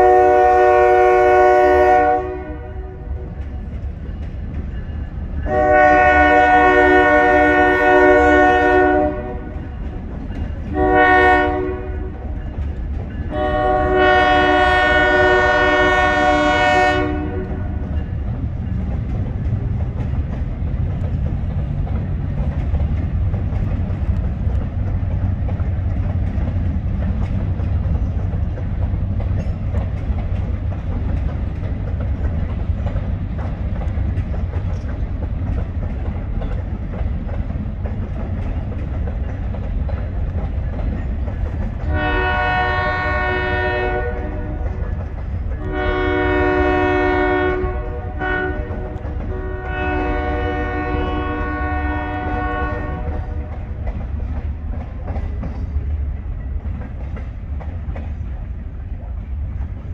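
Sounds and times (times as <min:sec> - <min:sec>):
locomotive air horn: 0:00.0 - 0:03.3, 0:05.4 - 0:09.6, 0:10.7 - 0:12.2, 0:13.3 - 0:17.9, 0:41.9 - 0:53.7
freight cars rumbling and rattling: 0:09.0 - 0:10.8, 0:15.2 - 0:59.9.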